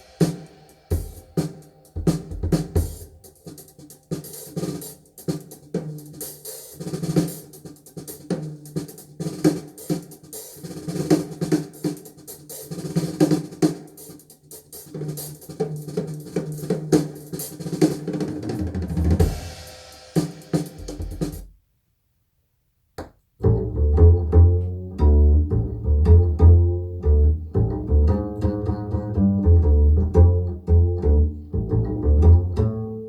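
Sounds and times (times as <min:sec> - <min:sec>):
drum-driven music over loudspeakers: 0:00.0 - 0:21.5.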